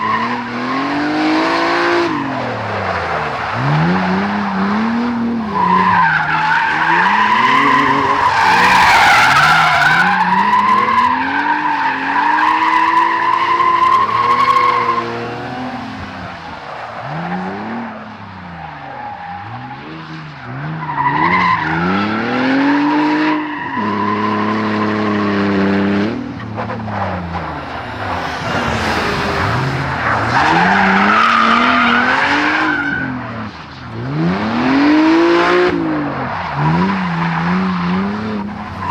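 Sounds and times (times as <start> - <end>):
car engine revving: 0.0 - 38.9
tyres squealing: 3.0 - 17.0, 26.5 - 33.3.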